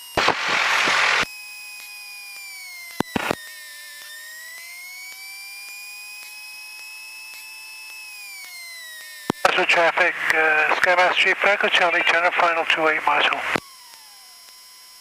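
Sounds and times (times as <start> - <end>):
radio static burst: 0.1 - 1.3, 3.1 - 3.4, 9.4 - 13.6
high whine on intercom: 0.2 - 1.3, 9.3 - 13.6.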